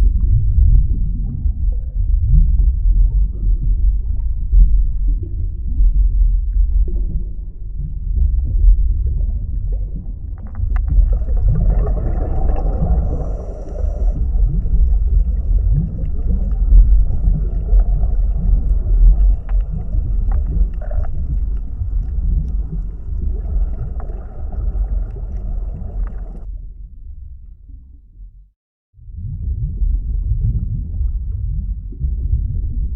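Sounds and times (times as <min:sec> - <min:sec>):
underwater rumble: 0:00.0 - 0:32.9
faint hiss: 0:12.5 - 0:15.3.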